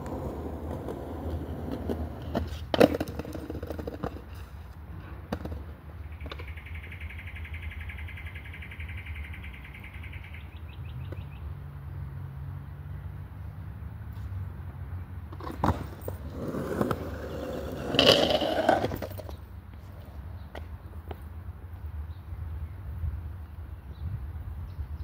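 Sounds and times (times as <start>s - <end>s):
skateboard knocks and clatter: 0.0s - 6.5s, 15.3s - 19.4s.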